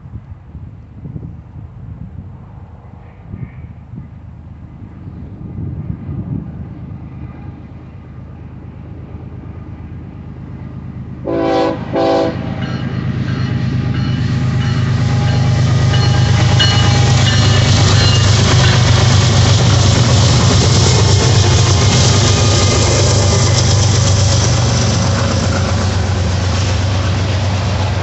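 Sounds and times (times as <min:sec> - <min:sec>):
diesel locomotive rumble: 0:00.0 - 0:28.0
train rail noise: 0:00.0 - 0:28.0
locomotive horn blasts: 0:11.3 - 0:13.0.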